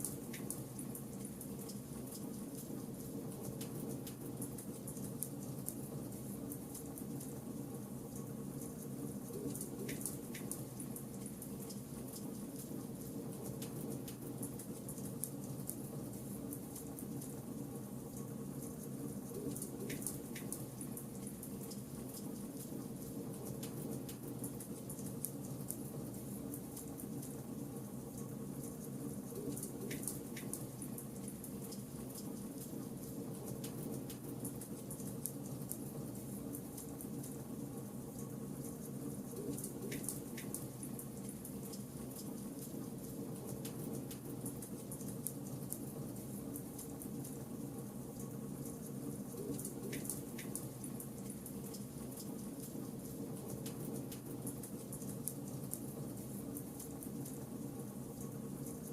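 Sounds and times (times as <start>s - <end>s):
low background noise: 0.0s - 58.9s.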